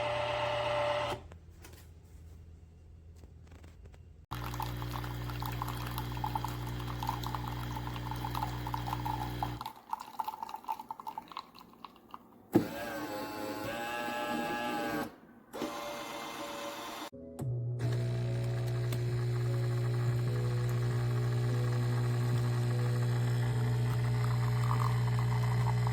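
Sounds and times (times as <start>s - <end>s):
espresso machine pump hum: 4.3s - 9.6s, 17.8s - 25.9s
liquid running into cup: 4.3s - 12.3s, 18.8s - 25.9s.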